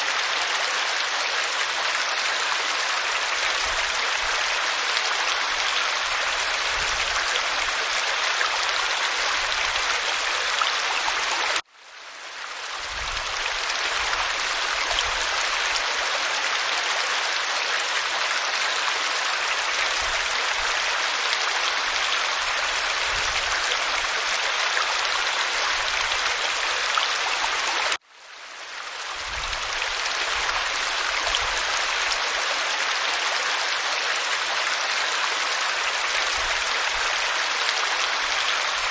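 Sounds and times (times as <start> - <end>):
waterfall rushing: 35.4 - 38.9.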